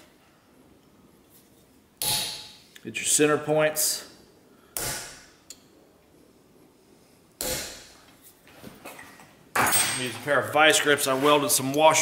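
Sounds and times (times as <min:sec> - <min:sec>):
hammer striking center punch: 0:02.0 - 0:02.6, 0:04.8 - 0:05.3, 0:07.4 - 0:08.0.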